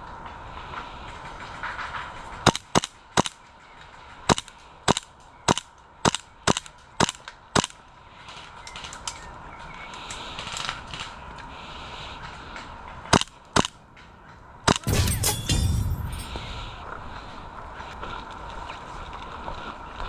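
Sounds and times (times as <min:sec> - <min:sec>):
airsoft gun shots: 0:14.7 - 0:18.2.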